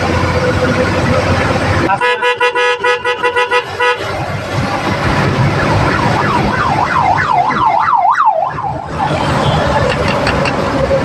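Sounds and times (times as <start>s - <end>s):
engine and road noise: 0.0s - 11.0s
vehicle horn short blasts: 1.9s - 4.1s
siren warbling: 5.2s - 9.6s.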